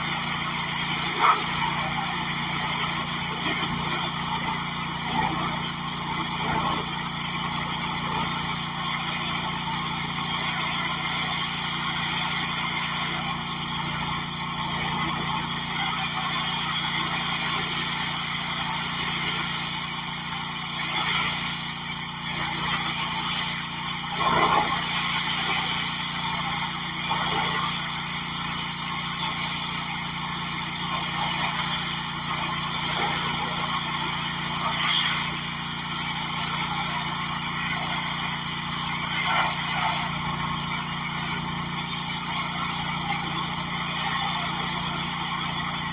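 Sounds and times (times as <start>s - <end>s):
small gasoline engine running: 0.0s - 45.9s.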